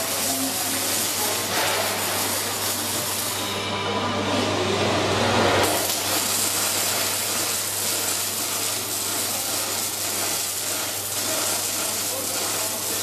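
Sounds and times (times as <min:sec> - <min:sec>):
arc welding sizzling hiss: 0:00.0 - 0:03.6, 0:05.4 - 0:13.0.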